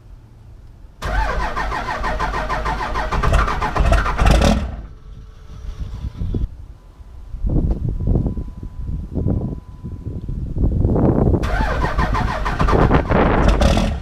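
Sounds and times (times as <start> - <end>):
diesel engine cranking: 1.0 - 6.5, 11.4 - 14.0.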